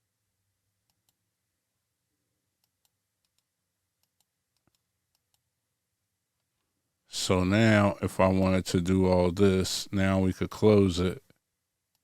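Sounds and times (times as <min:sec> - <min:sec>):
computer mouse clicks: 0:00.8 - 0:01.2, 0:02.6 - 0:05.4.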